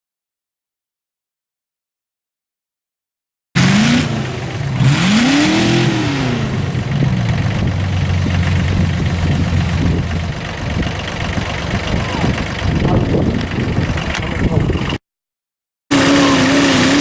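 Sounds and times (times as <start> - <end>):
pulling tractor engine revving: 3.6 - 15.0, 15.9 - 17.0.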